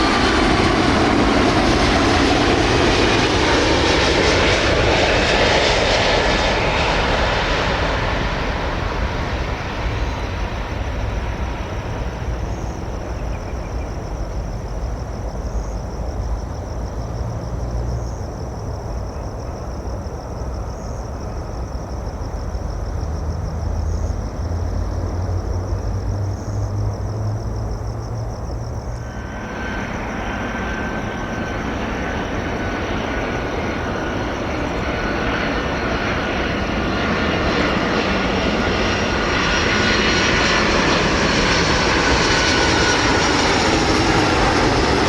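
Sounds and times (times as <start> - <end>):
jet engines rumbling: 0.0 - 45.0
pulsing high-pitched drone: 28.9 - 45.0.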